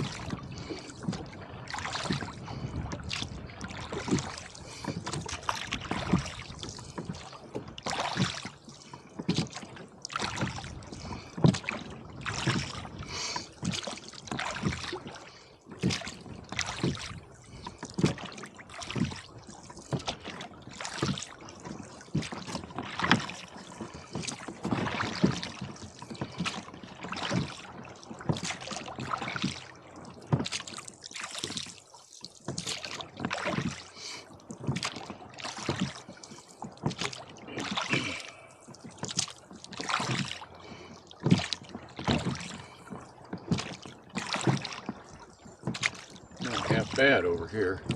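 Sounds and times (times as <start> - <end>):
water splashing around rowboat: 0.0 - 47.9.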